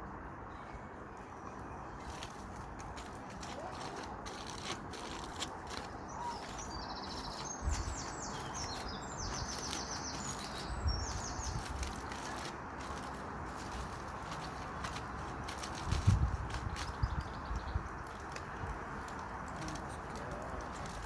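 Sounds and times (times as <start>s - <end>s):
campfire crackling: 2.0s - 21.0s
songbird singing trills: 5.1s - 15.0s, 16.0s - 18.3s.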